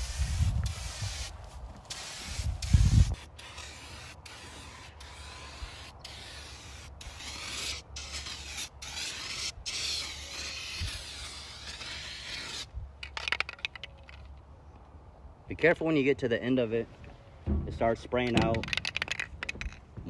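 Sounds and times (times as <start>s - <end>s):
spray paint hissing: 0.0s - 12.7s.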